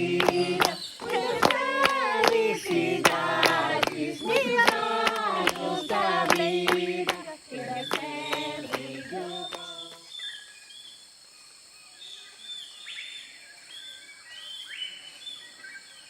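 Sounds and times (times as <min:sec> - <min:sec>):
voices singing unaccompanied: 0:00.0 - 0:10.1
high insect-like hiss: 0:00.0 - 0:16.0.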